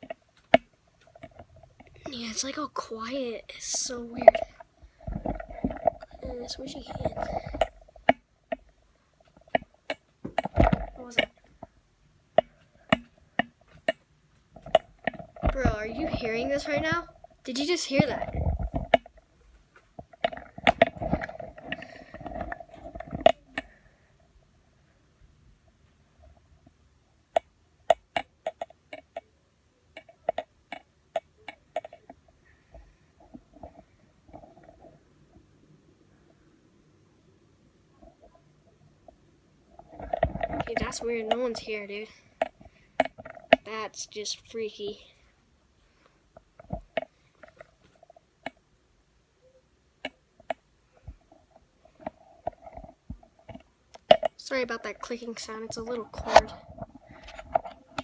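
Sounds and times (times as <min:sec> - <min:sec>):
cord clicking against phone: 0:27.4 - 0:29.3, 0:29.9 - 0:32.2.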